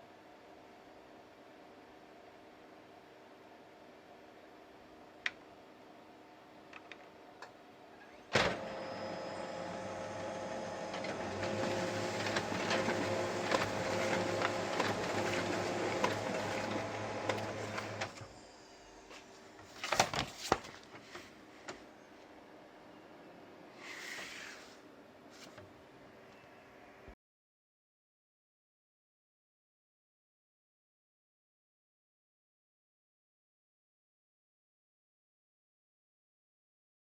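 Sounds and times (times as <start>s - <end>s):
printer clunk: 8.3s - 18.2s
printer motors humming and ticking: 8.4s - 18.2s.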